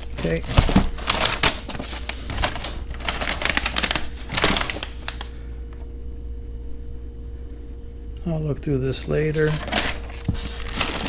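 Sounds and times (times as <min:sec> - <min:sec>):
packaging crinkling: 0:00.0 - 0:05.4, 0:09.3 - 0:11.0
low steady hum: 0:00.0 - 0:11.0.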